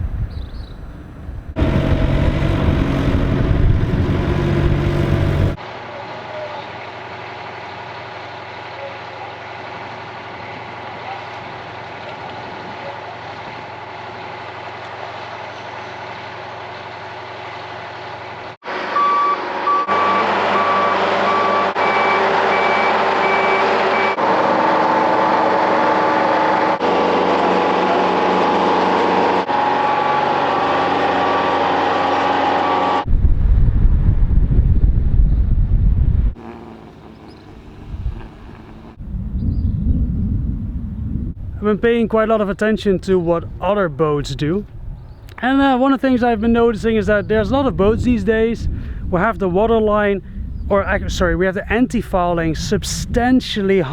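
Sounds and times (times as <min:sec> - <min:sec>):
loud low rumble: 0:00.0 - 0:05.6
heavy vehicle engine running: 0:00.0 - 0:33.1
reversing alarm beeping: 0:18.7 - 0:24.2.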